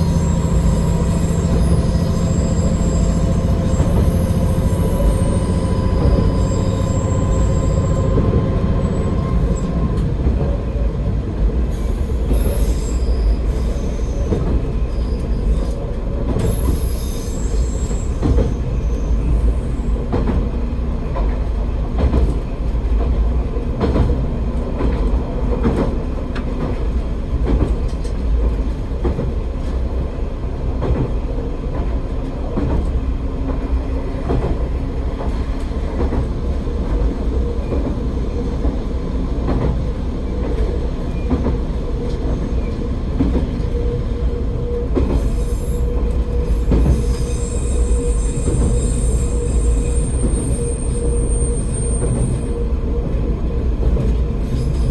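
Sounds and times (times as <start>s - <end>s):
high wheel squeals: 0.0s - 9.7s, 11.8s - 15.8s, 16.4s - 20.0s, 43.7s - 52.7s
diesel railcar running: 0.0s - 54.9s.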